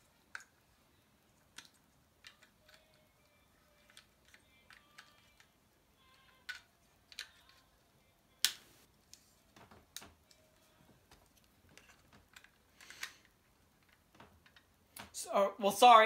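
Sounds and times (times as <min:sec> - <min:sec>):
plastic bricks clicking: 0:01.6 - 0:03.1, 0:06.1 - 0:07.6.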